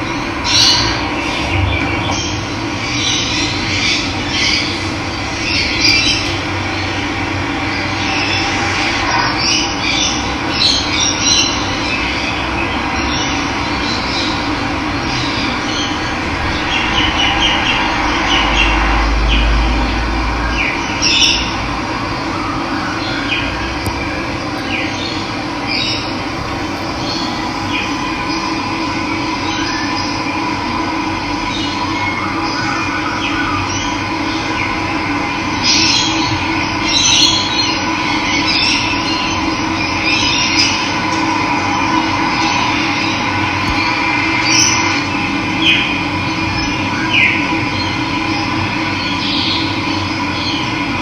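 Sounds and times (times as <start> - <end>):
low rumble: 0.0 - 4.2, 12.3 - 22.6, 23.4 - 31.8
birds chirping and calling: 24.6 - 28.8
running water rushing: 26.1 - 29.8.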